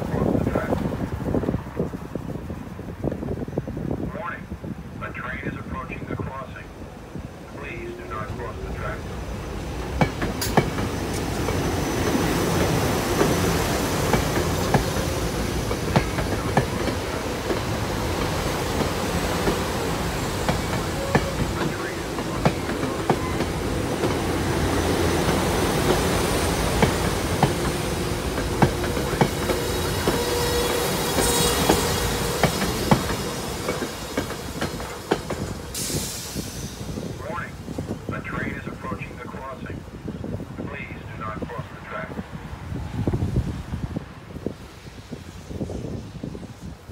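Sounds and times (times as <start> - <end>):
train wheels rumbling on rail: 0.0 - 46.9
wheels clacking over rail joints: 9.0 - 35.8.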